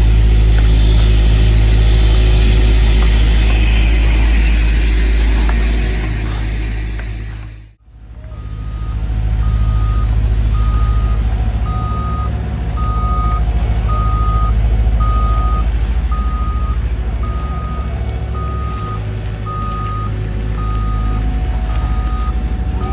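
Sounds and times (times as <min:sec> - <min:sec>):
heavy diesel engine rumble: 0:00.0 - 0:22.9
backup alarm beeping: 0:08.2 - 0:22.9.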